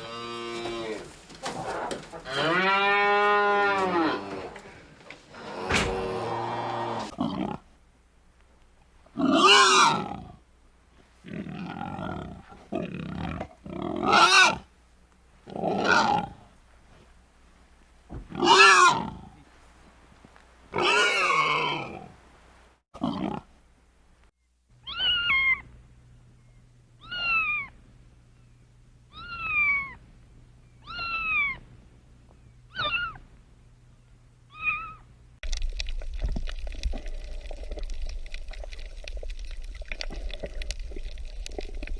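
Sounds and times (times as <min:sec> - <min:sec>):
loud harsh animal calls: 0:09.2 - 0:10.2, 0:14.0 - 0:14.6.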